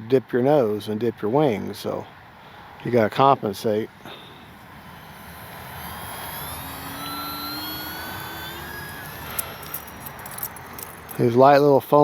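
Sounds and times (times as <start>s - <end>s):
model plane motor whirring: 2.4s - 11.4s.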